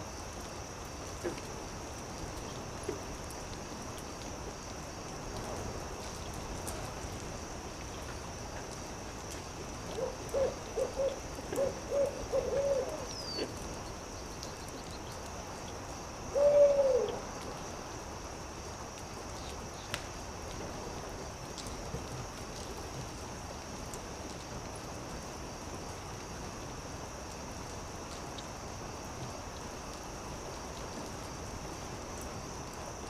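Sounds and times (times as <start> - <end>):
faint steady hiss: 0.0 - 33.0
soft campfire crackles: 0.0 - 33.0
owl hooting: 10.0 - 13.5, 16.3 - 17.2.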